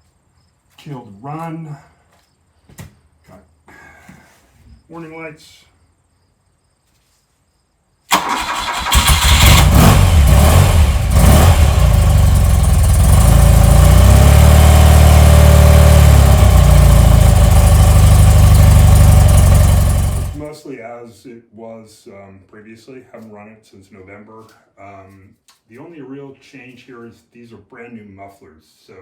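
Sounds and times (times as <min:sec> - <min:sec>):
motorcycle engine starting and running: 0:08.1 - 0:20.5.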